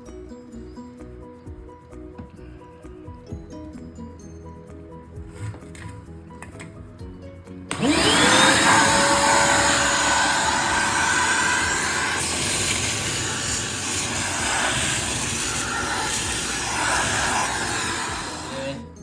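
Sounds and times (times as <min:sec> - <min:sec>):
electric motor whining: 0:07.7 - 0:19.0
rush of air: 0:09.7 - 0:18.6.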